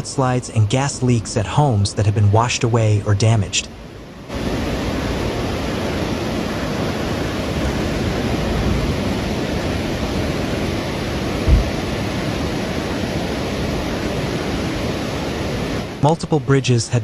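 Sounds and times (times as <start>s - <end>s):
floodwater rushing: 0.0s - 17.0s
low thump: 11.4s - 11.8s.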